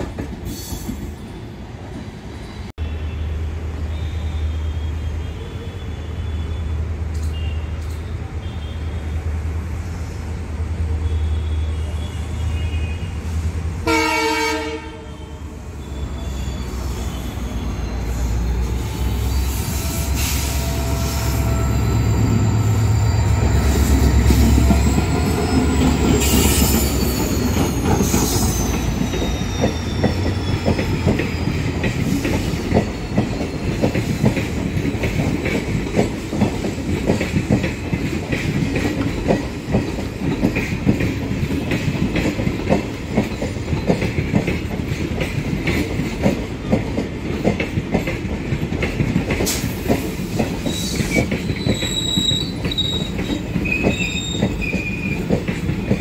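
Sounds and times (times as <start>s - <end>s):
train horn blast: 13.8s - 15.5s
wheels squealing: 15.7s - 34.4s, 50.6s - 56.0s.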